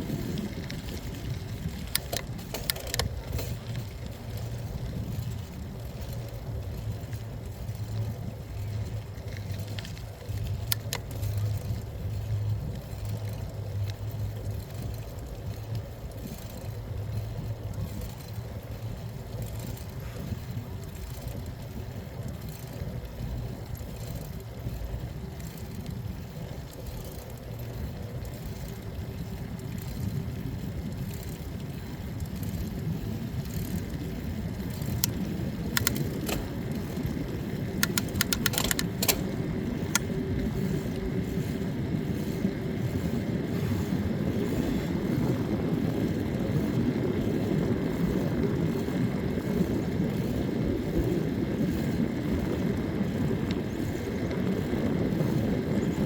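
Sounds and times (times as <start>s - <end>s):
wind and road rumble: 0.0s - 56.0s
sharp clicks or rattles: 0.3s - 4.5s, 34.7s - 40.2s.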